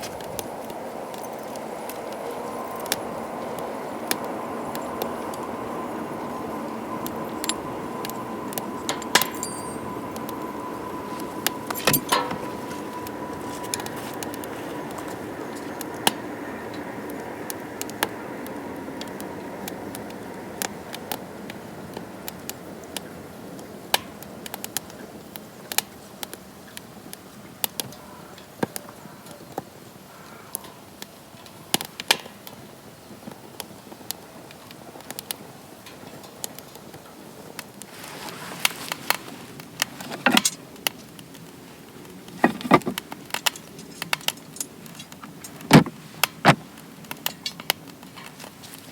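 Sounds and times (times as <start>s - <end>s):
wood fire pops and snaps: 38.6s - 48.8s.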